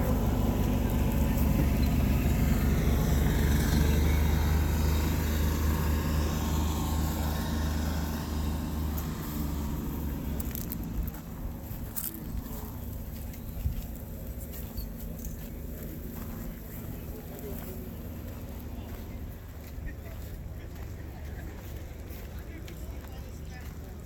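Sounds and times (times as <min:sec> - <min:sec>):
car driving past: 0:00.0 - 0:11.7.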